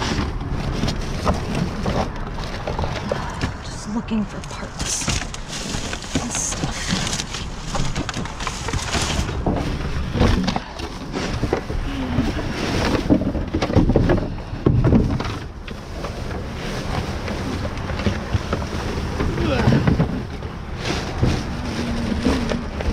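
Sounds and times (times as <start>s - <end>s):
knocks and clatters of objects: 0.0s - 22.9s
rustling of items: 0.0s - 22.9s.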